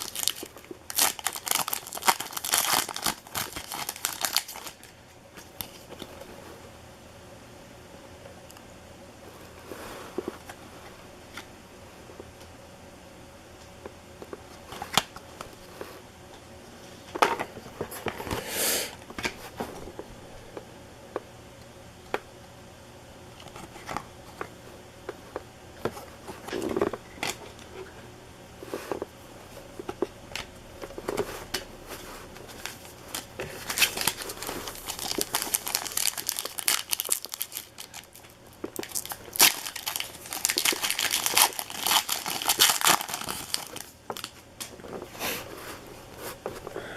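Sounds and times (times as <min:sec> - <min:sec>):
card pack wrappers crinkling: 0:00.0 - 0:06.1, 0:29.8 - 0:45.1.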